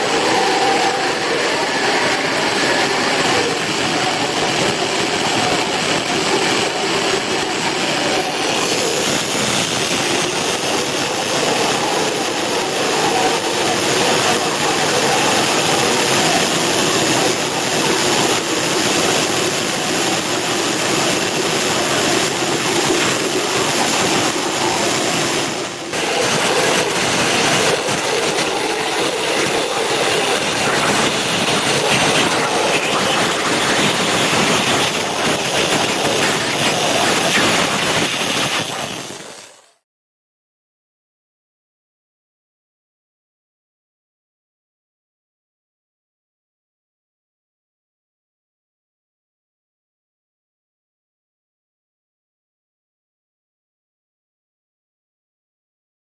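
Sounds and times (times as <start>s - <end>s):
water jet cutter hissing: 0.0s - 39.8s.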